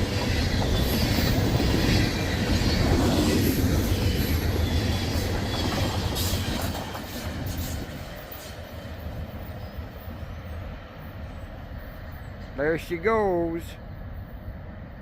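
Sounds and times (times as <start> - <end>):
train wheels clicking: 0.0 - 10.0
freight train cars rolling past: 0.0 - 15.0.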